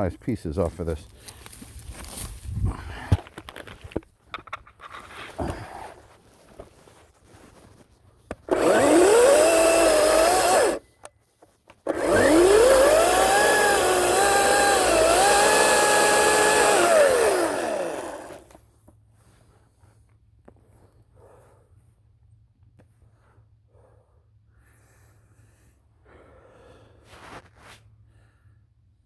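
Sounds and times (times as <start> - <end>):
chainsaw cutting wood: 8.3 - 10.8, 11.8 - 18.6.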